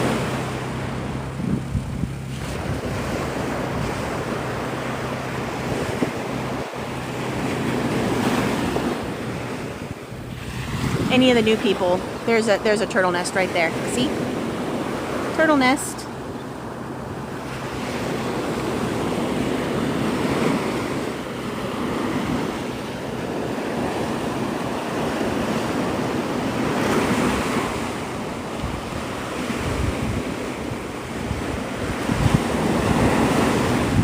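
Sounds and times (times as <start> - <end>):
surf breaking on beach: 0.0 - 16.0, 17.0 - 34.0
wind buffeting microphone: 0.0 - 34.0.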